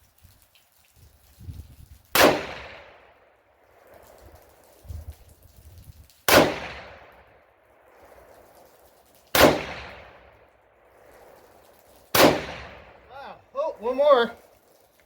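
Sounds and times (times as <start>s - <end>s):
rifle shots with echo: 2.1s - 4.1s, 6.3s - 8.1s, 9.3s - 10.4s, 12.1s - 13.1s.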